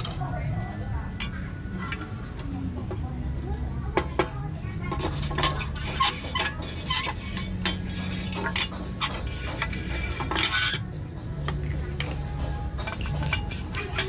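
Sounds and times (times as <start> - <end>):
wooden stick scraping metal housing: 4.9 - 10.9, 11.5 - 14.0.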